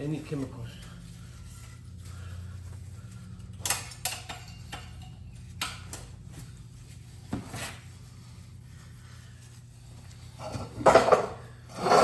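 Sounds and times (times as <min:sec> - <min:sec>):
steady low hum: 0:00.0 - 0:12.0
metal tools clinking: 0:03.4 - 0:06.1.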